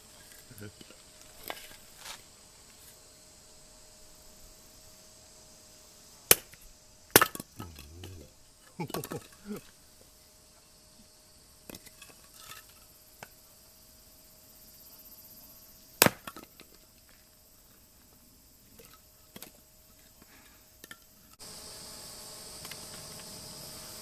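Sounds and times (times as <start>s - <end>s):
hatchet striking wood: 6.3s - 6.6s, 7.2s - 8.2s, 16.0s - 16.4s.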